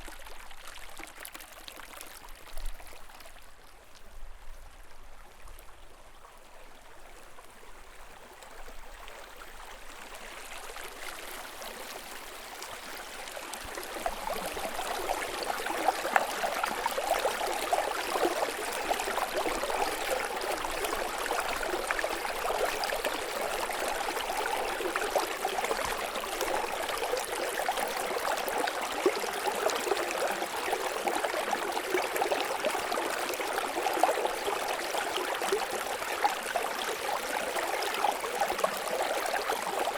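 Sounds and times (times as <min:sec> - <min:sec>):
stream babbling over rocks: 0:09.6 - 0:39.9.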